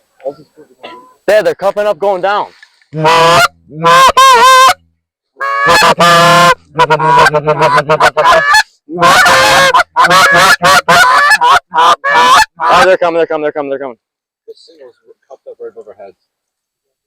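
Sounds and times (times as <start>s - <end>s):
goose honking: 3.0s - 4.8s, 5.4s - 13.0s.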